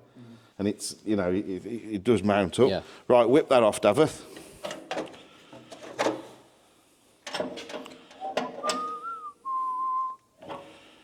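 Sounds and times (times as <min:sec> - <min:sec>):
person whistling: 0:08.6 - 0:10.2.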